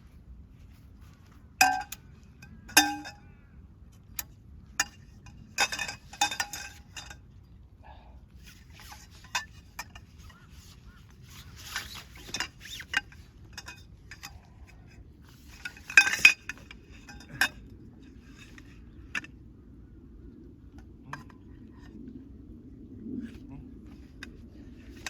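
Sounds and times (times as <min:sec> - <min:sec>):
metal camping gear clinking: 0:01.6 - 0:03.3, 0:04.8 - 0:07.3, 0:08.5 - 0:17.7.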